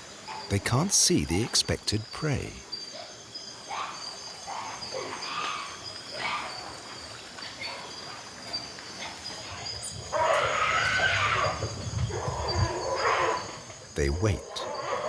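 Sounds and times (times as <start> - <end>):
insects singing: 0.5 - 2.9, 9.6 - 14.9.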